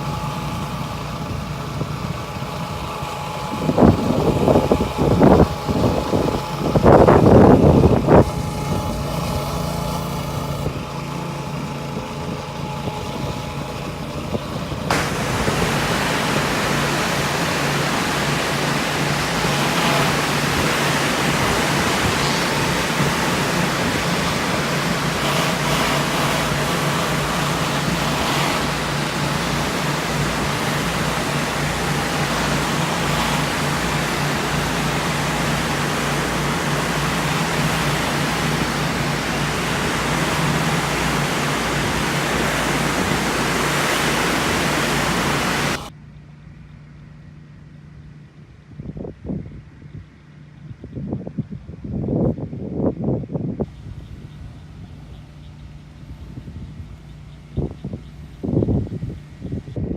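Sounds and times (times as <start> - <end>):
high-pressure water spray hissing: 0.0 - 13.8, 14.7 - 45.9
pressure washer humming: 0.0 - 46.0.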